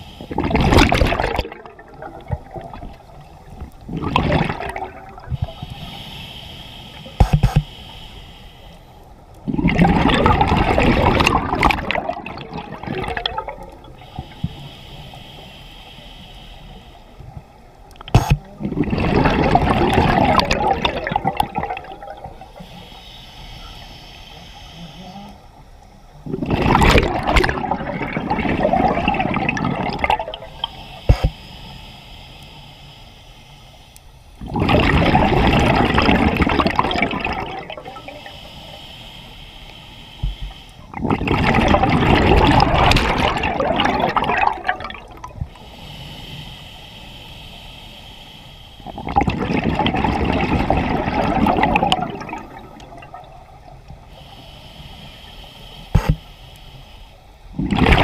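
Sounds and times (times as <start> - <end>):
diver exhaling bubbles: 0.3 - 3.1, 3.9 - 5.5, 9.5 - 13.8, 18.2 - 22.5, 26.2 - 30.5, 34.4 - 38.3, 40.9 - 45.4, 48.9 - 53.4, 57.5 - 58.0.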